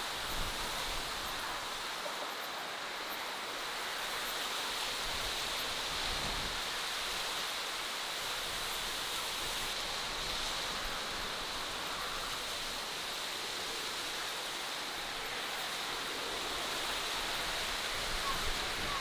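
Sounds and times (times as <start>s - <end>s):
outdoor ambience rushing noise: 0.0s - 19.0s.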